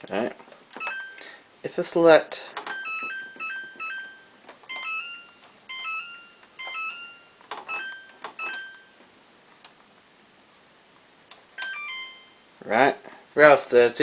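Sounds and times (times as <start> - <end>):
two-note electronic beeps: 2.7 - 9.0, 11.6 - 12.5.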